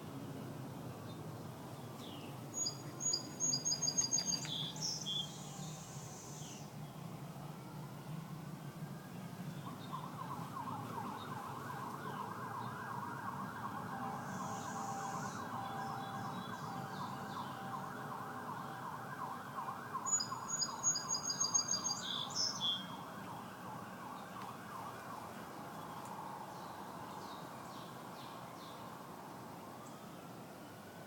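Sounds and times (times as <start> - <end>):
bird chirping: 1.9 - 6.7, 20.0 - 22.9
emergency vehicle siren: 2.6 - 31.0.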